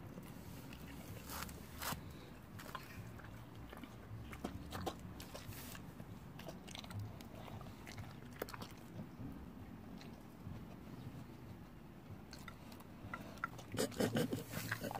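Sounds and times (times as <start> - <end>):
dog chewing from plate: 0.2 - 9.2.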